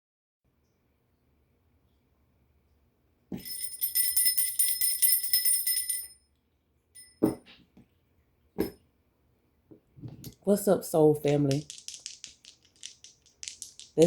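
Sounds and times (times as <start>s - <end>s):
small bells jingling: 3.4s - 6.2s, 11.3s - 14.0s.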